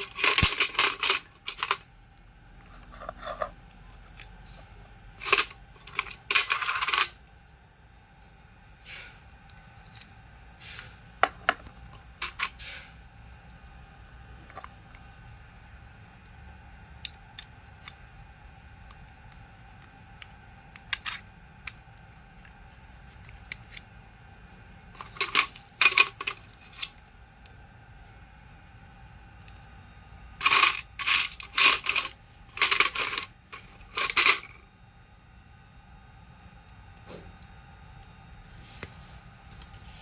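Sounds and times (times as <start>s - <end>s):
small metal parts clinking: 0.0s - 1.8s, 5.2s - 7.2s, 12.2s - 12.5s, 20.7s - 21.8s, 24.9s - 27.0s, 30.4s - 34.6s.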